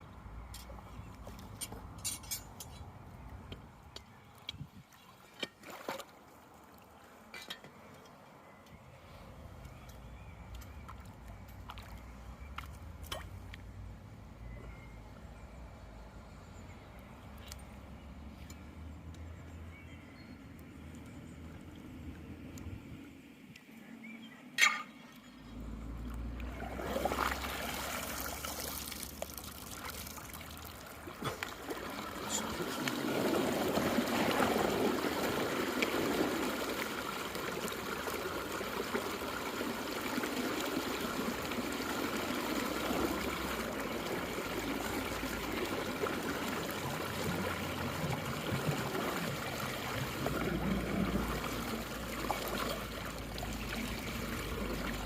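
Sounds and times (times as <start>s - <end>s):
water draining through storm drain: 9.6s - 14.5s, 24.5s - 55.0s.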